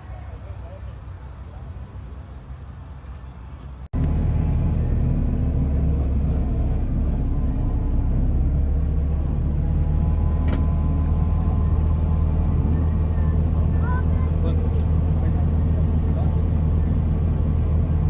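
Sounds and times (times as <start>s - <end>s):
car engine running: 4.0s - 18.0s.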